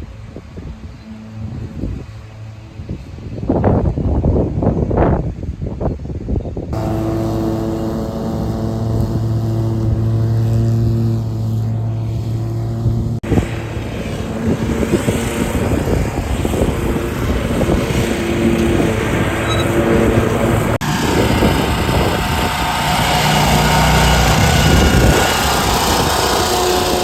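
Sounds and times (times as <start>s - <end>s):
wind on microphone: 0.0s - 27.0s
engine running: 6.7s - 27.0s.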